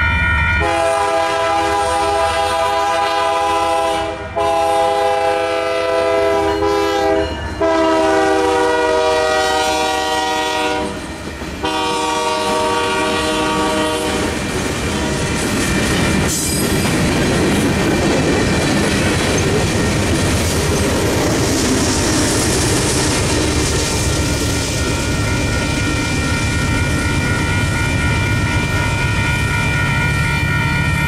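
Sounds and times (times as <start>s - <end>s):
locomotive air horn: 0.6s - 11.0s, 11.6s - 14.4s.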